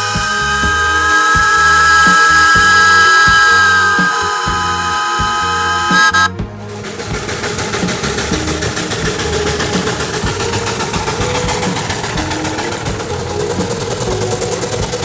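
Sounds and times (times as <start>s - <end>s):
steam locomotive whistle: 0.0s - 12.9s
steady pulsing noise: 0.0s - 15.0s.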